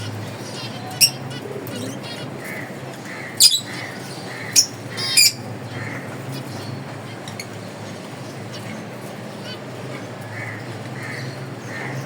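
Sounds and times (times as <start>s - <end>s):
sharp high finch calls: 0.0s - 2.3s, 3.3s - 5.4s
soft finch chirps: 3.4s - 5.4s.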